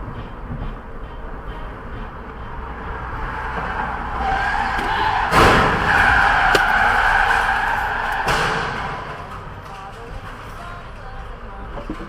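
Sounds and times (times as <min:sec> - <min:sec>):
road rumble: 0:00.0 - 0:12.0
car tires skidding and squealing: 0:01.5 - 0:09.6
loud bang: 0:04.6 - 0:09.6.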